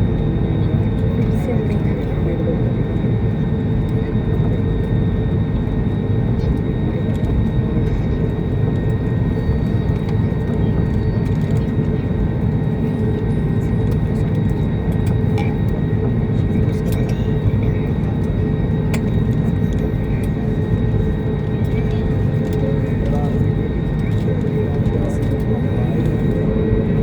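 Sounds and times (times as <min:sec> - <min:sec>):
jet engine drone and rushing air: 0:17.4 - 0:27.0.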